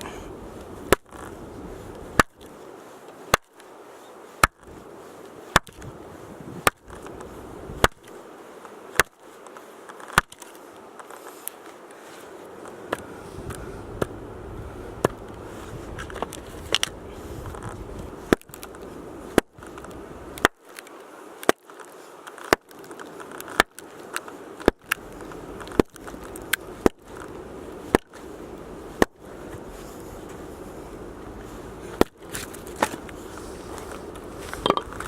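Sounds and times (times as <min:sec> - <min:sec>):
axe splitting firewood: 0:00.6 - 0:02.6, 0:03.3 - 0:03.6, 0:04.4 - 0:04.8, 0:05.5 - 0:08.1, 0:08.7 - 0:09.2, 0:09.9 - 0:11.6, 0:12.9 - 0:14.2, 0:15.0 - 0:29.7, 0:31.8 - 0:35.0.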